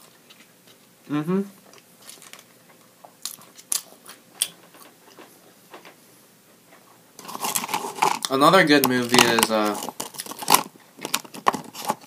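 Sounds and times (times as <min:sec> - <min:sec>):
close-up chewing: 0:00.0 - 0:01.0.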